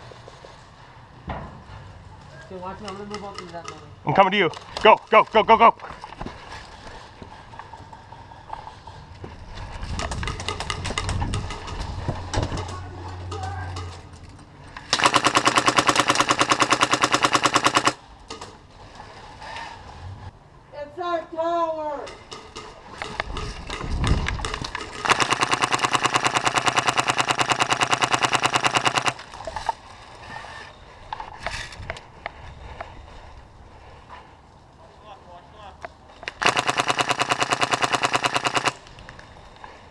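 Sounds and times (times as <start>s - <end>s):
airsoft gun full-auto burst: 14.9s - 18.0s, 25.0s - 29.2s, 36.4s - 38.9s.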